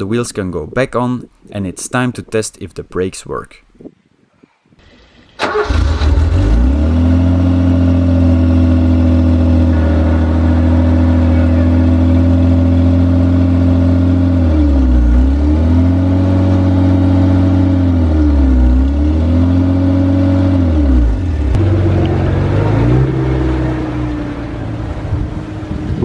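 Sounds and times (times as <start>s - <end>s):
car engine starting and running: 4.8s - 26.0s.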